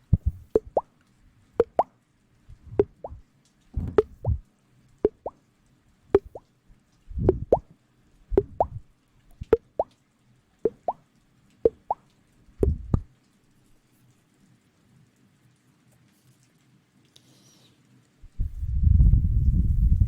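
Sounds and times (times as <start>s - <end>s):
soft low thuds: 0.1s - 0.8s, 2.5s - 3.2s, 3.8s - 4.4s, 7.1s - 7.6s, 8.3s - 8.8s, 12.6s - 13.1s
wet plopping pops: 0.1s - 0.8s, 1.6s - 1.9s, 2.8s - 3.2s, 3.8s - 4.4s, 5.1s - 5.4s, 6.2s - 6.4s, 7.2s - 7.7s, 8.4s - 8.8s, 9.4s - 9.9s, 10.7s - 11.0s, 11.7s - 12.0s, 12.6s - 13.1s.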